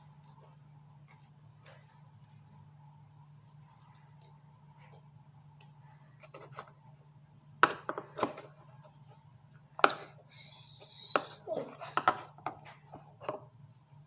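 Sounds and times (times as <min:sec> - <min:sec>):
steady low hum: 0:08.6 - 0:14.0.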